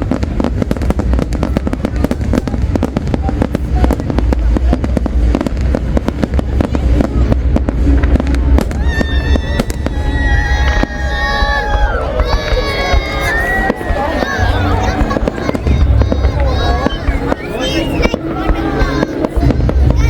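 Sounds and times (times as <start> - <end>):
deep rumble: 0.0 - 20.0
fireworks bangs: 0.0 - 20.0
high whistling tones: 16.7 - 18.4.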